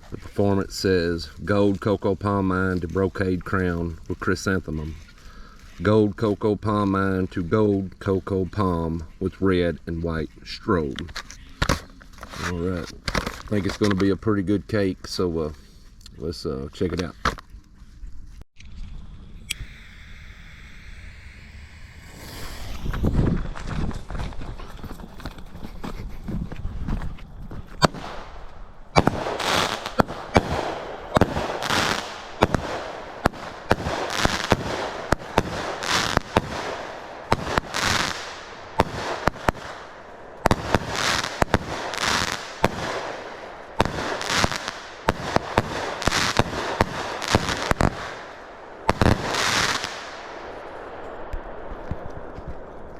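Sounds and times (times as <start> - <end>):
hissing crackling firework bursts: 19.4 - 24.6, 27.8 - 50.7
firework launch thumps: 21.8 - 24.9, 27.8 - 43.2.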